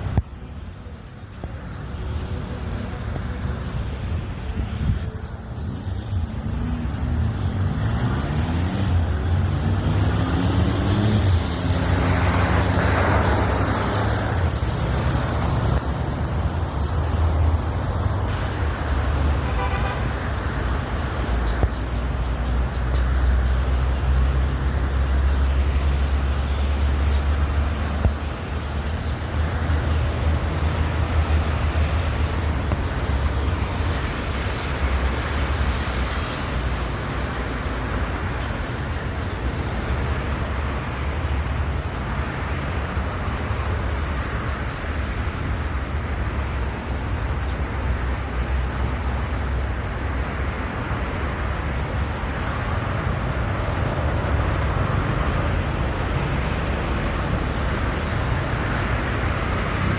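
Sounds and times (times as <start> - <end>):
road traffic noise: 0.0 - 59.9
vehicle engine revving: 6.4 - 16.0.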